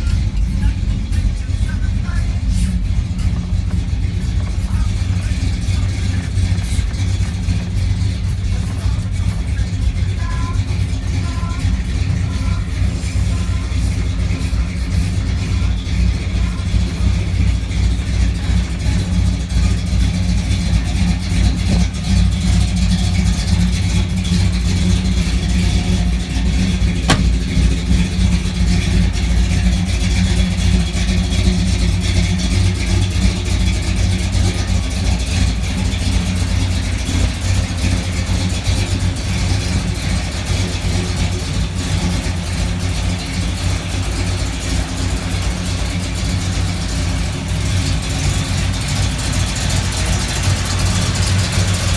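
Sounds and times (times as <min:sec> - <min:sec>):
truck engine running: 0:00.0 - 0:51.9
sharp click: 0:27.1 - 0:27.4.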